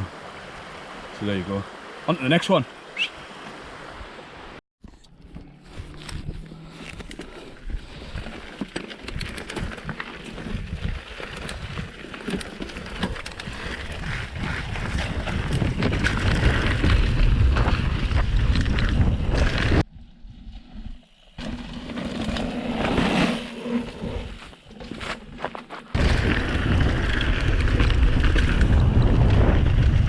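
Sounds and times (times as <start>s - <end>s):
bike rattling and knocking: 5.5s - 19.9s
wind rushing over microphone: 13.0s - 20.7s, 26.0s - 30.0s.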